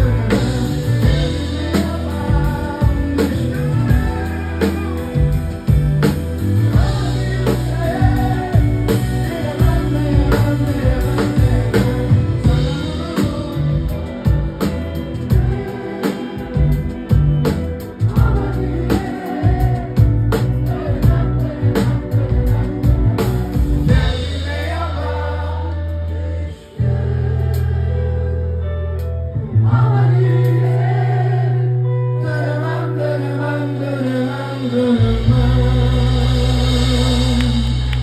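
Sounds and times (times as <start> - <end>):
drums hitting: 0.0 - 25.2
voices singing: 0.0 - 28.6, 29.5 - 38.0
held bass chords: 0.0 - 38.0
live rock band playing: 0.0 - 38.0.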